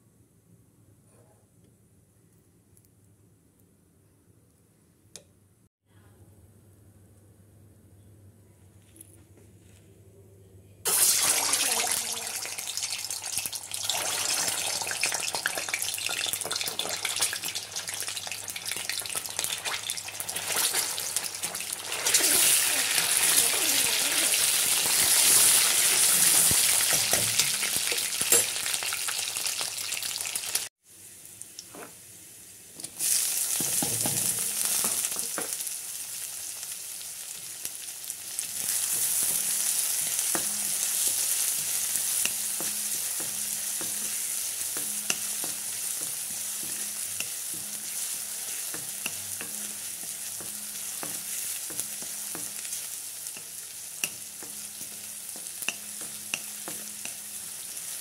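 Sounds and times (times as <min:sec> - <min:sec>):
hot oil sizzling: 0:10.9 - 0:58.0
steel spoon scraping a pan: 0:38.4 - 0:58.0.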